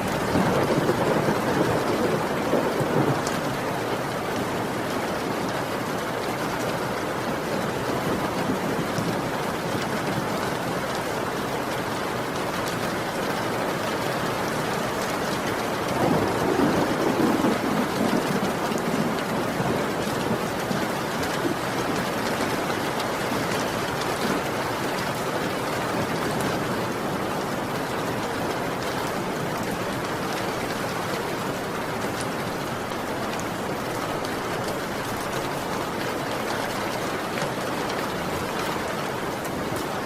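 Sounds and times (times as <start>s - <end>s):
heavy rain: 0.0s - 40.0s
thunder rumble: 0.1s - 3.5s, 15.9s - 20.8s.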